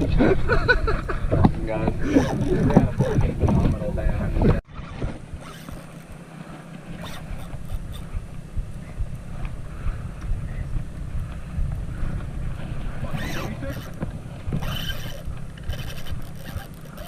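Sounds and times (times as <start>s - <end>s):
boat engine rumble: 0.0s - 17.0s
wind noise: 0.0s - 17.0s
small clicks: 14.6s - 17.0s.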